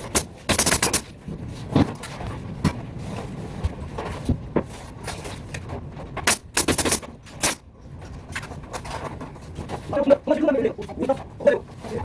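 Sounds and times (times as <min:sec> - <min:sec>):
carpentry knocks and clacks: 0:05.5 - 0:07.6.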